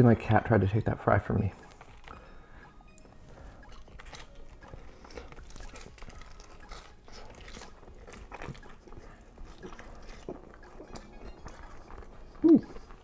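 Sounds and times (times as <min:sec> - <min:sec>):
chewing and crunching fries: 0:01.5 - 0:13.0
wet mouth sounds: 0:03.6 - 0:13.0.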